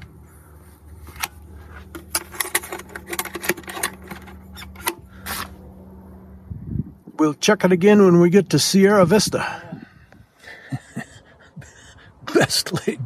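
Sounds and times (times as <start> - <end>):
steady low hum: 0.0 - 13.0
clicks of things being handled: 1.0 - 5.6.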